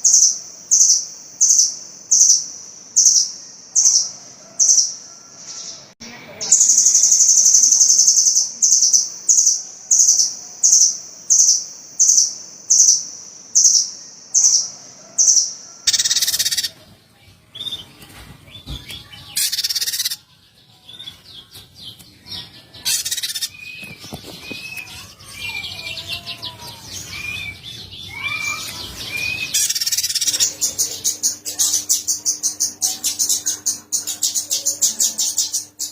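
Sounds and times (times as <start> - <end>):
songbird chirps and whistles: 6.5 - 16.8, 17.4 - 35.9
loud high bird call: 14.4 - 16.8, 22.8 - 30.6.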